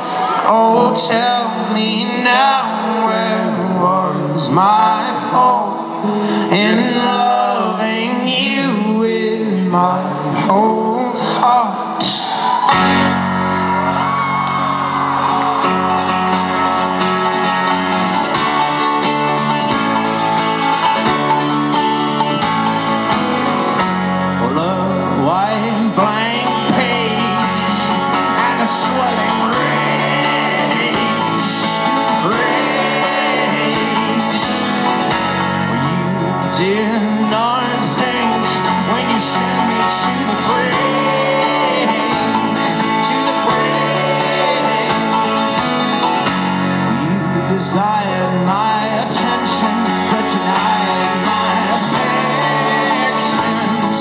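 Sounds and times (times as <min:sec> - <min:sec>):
wordless singing: 0:00.0 - 0:12.1, 0:24.4 - 0:46.3, 0:46.9 - 0:54.0
guitar: 0:00.0 - 0:54.0
bass chords: 0:12.8 - 0:54.0.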